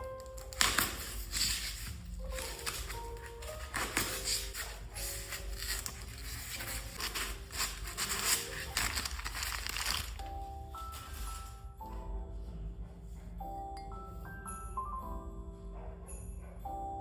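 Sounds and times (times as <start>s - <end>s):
packaging crinkling and tearing: 0.0s - 10.4s
light background music: 0.0s - 17.0s.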